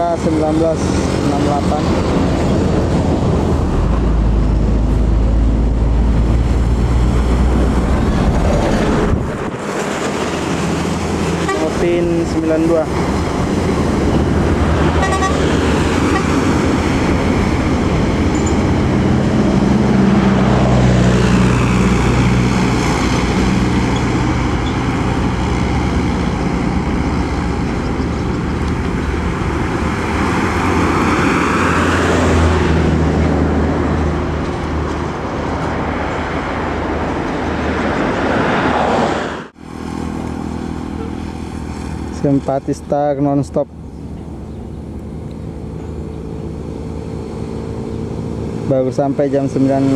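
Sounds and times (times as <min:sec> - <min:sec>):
buses passing at speed: 0:00.0 - 0:49.9
horn toots: 0:11.4 - 0:12.0, 0:14.9 - 0:16.4.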